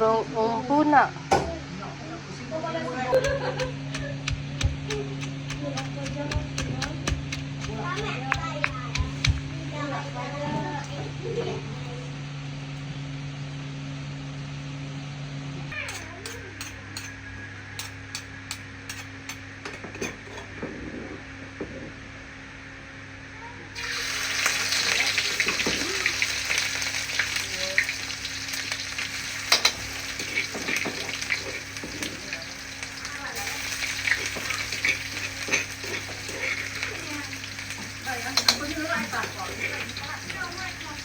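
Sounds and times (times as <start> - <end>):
oil frying in a pan: 3.2 - 9.5, 23.8 - 41.0
food sizzling in hot oil: 23.8 - 41.0.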